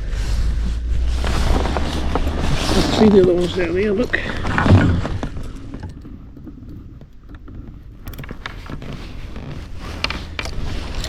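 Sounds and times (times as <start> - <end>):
low steady rumble: 0.0 - 11.0
gear handled in rowing boat: 0.1 - 11.0.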